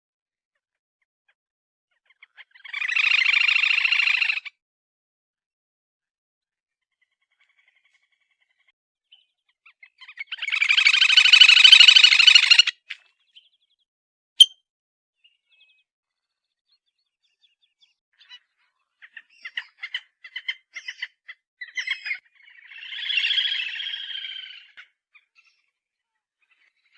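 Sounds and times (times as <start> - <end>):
short bird chirps: 14.4 - 14.6.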